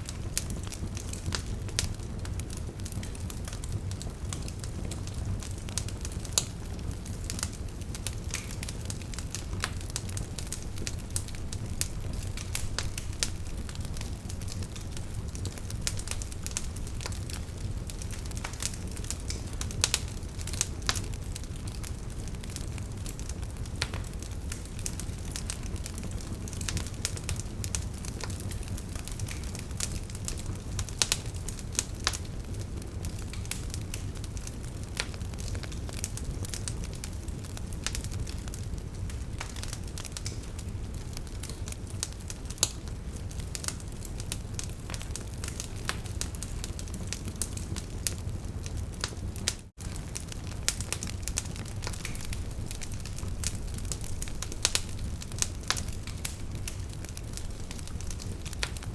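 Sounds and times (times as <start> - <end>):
wood fire crackling: 0.0 - 58.9.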